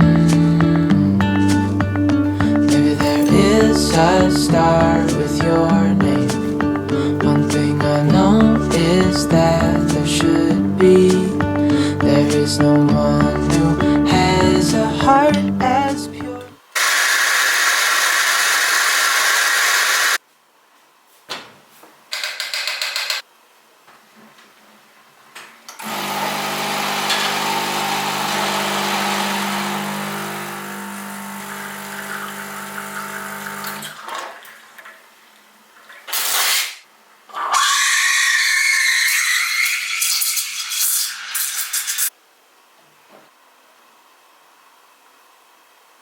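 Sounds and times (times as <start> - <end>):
kitchen appliance motor whirring: 16.8 - 20.2, 25.8 - 33.8.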